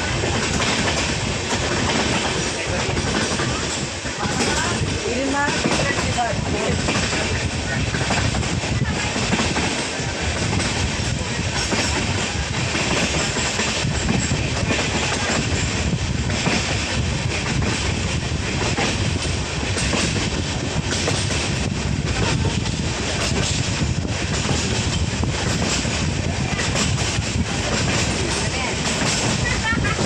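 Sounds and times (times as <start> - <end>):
train rumbling: 0.0 - 30.0
wheels clattering over rails: 0.0 - 30.0.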